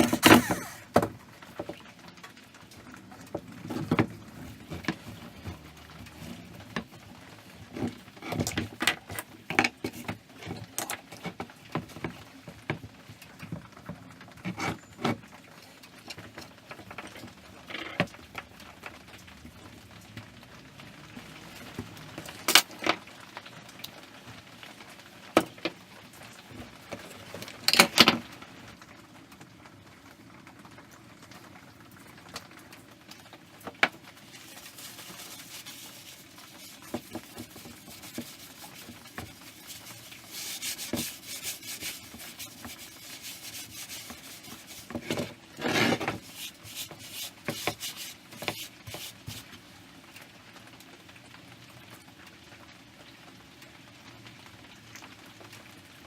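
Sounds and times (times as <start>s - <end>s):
rustling rubbing rattle: 0.0s - 0.9s, 34.2s - 49.5s.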